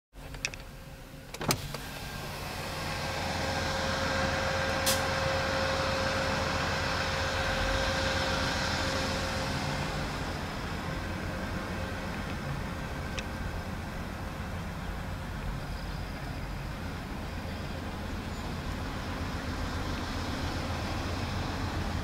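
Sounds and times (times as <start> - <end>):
passing train rushing rumble: 1.8 - 22.0.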